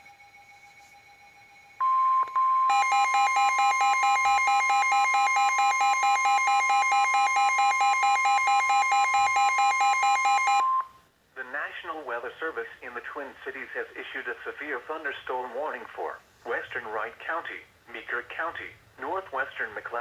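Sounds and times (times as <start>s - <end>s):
steady alarm tone: 0.0s - 10.8s.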